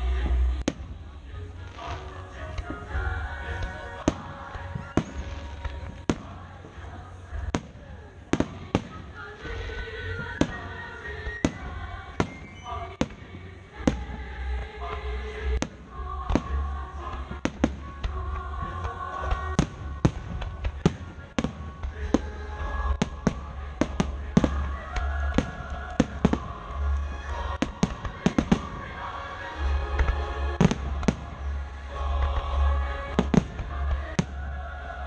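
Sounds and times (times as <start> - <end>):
music playing: 0.0 - 35.0.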